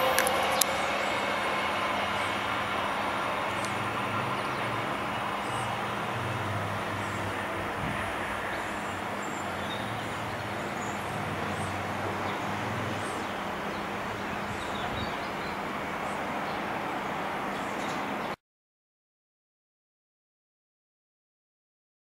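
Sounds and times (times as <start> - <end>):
low locomotive hum: 0.0 - 18.4
moving train rumble: 0.0 - 18.4.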